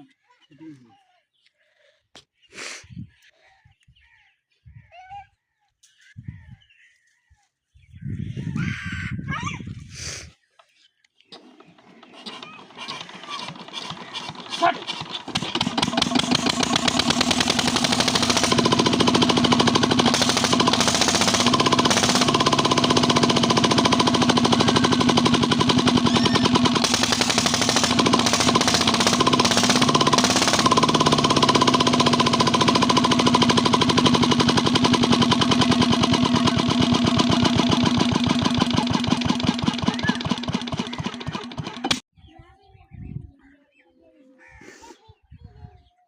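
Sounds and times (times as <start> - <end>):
diesel engine running pump: 11.4 - 42.0.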